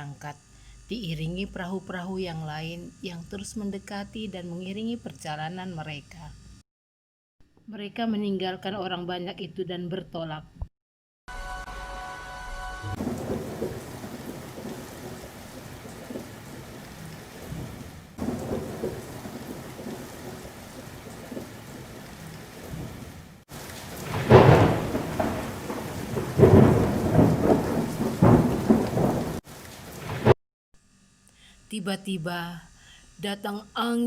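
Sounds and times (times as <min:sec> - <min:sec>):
rolling thunder: 0:12.9 - 0:16.6, 0:17.4 - 0:21.9, 0:23.8 - 0:30.4
steady rain: 0:13.0 - 0:30.4.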